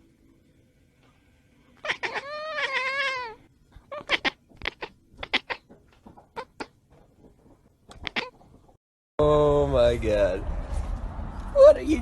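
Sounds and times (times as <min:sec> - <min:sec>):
animal wavering cry: 0:01.8 - 0:05.7, 0:08.0 - 0:08.4
short sharp squeaks: 0:07.9 - 0:08.5.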